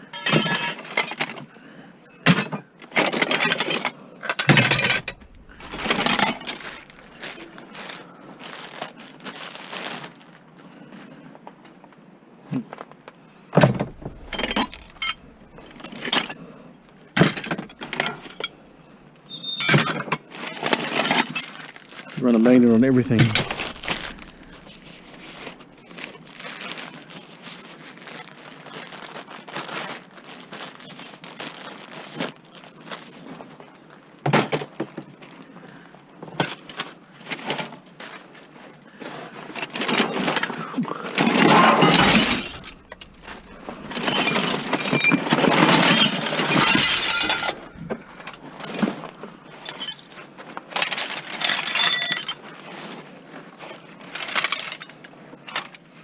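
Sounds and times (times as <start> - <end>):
scrap metal clinking and rattling: 0.0 - 1.4, 2.3 - 8.0, 13.6 - 27.0, 39.4 - 53.1, 53.7 - 55.9.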